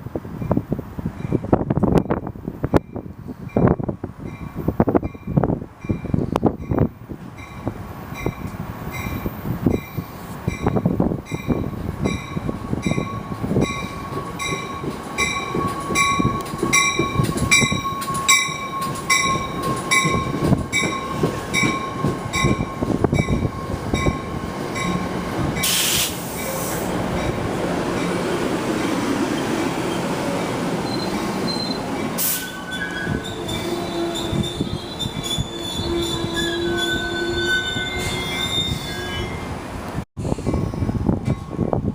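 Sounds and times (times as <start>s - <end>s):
train running: 0.0s - 41.9s
wind gusts on microphone: 0.0s - 41.9s
short hiss: 25.6s - 26.9s.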